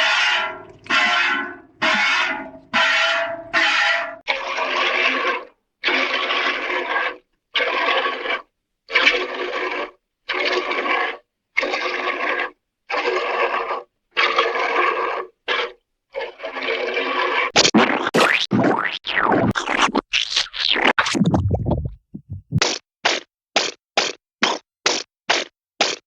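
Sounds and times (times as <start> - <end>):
cartoon rasping scraping strokes: 0.0 - 4.2, 19.3 - 22.7.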